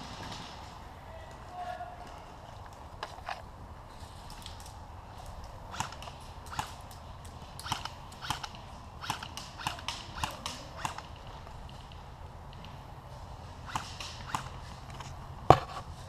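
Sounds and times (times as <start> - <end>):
airsoft guns firing: 0.0 - 2.2, 5.4 - 15.6.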